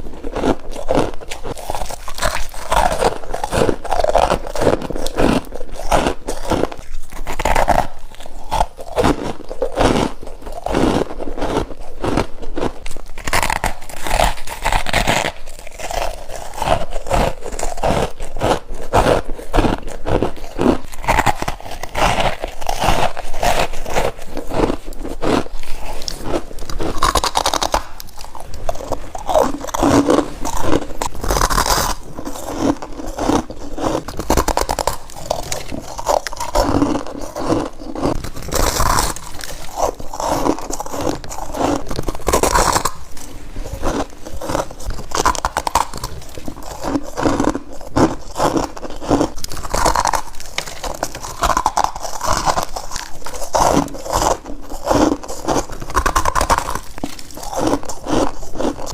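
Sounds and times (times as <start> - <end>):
crunchy frost bites: 19.0 - 58.9.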